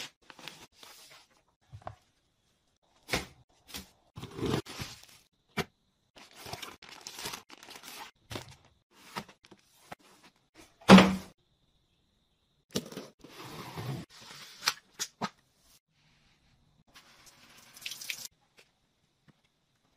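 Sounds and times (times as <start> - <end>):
plastic packaging crinkling: 6.3 - 8.2
items set down with thunks: 10.8 - 11.3.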